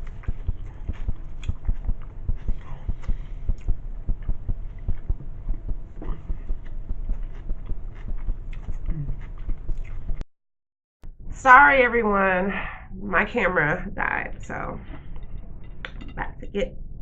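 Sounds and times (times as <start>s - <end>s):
chewing and mouth sounds: 0.0s - 10.2s.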